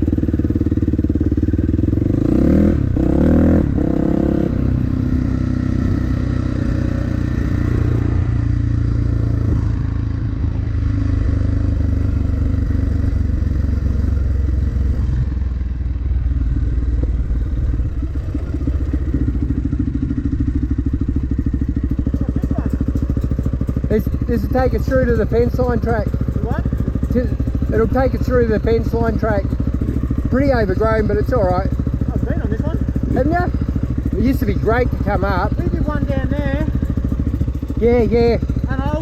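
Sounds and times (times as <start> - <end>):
dirt bike engine revving: 0.0 - 15.5, 16.2 - 39.0.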